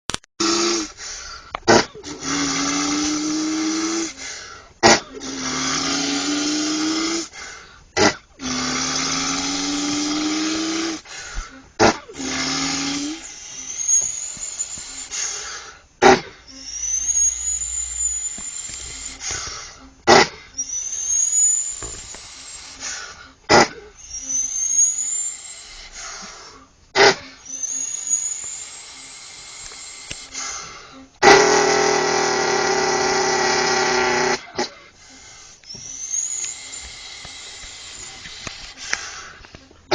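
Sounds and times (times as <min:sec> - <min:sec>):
boy droning like a truck: 0:00.4 - 0:07.4, 0:08.4 - 0:20.6
hissing with rising whistle: 0:12.2 - 0:15.4, 0:16.6 - 0:19.5, 0:20.6 - 0:23.0, 0:24.0 - 0:26.2, 0:27.4 - 0:30.6, 0:35.6 - 0:38.9.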